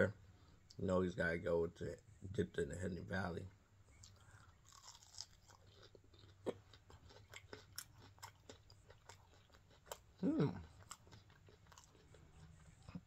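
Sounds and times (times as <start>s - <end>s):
chewing crunchy food: 3.9s - 13.0s
person vocal sound: 10.2s - 10.6s.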